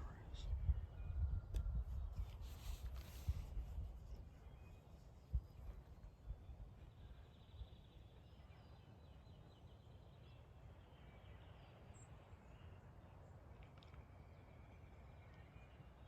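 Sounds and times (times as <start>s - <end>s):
wind rumbling on microphone: 0.0s - 7.8s.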